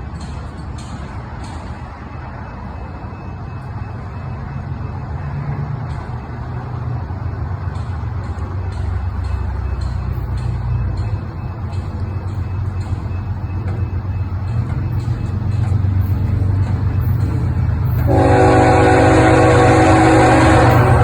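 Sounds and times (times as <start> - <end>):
train engine rumble: 0.0 - 21.0
multi-tone train horn: 17.8 - 21.0.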